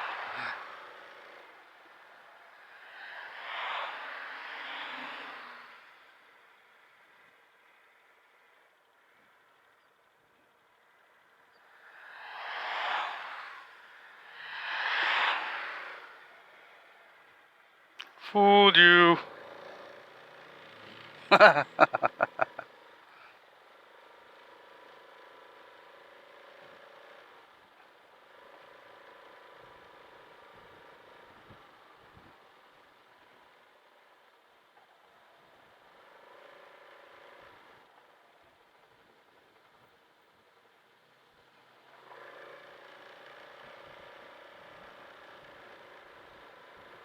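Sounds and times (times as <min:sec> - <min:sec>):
scooter engine running: 0:19.3 - 0:23.0
laughter-like voice pulses: 0:21.3 - 0:22.7.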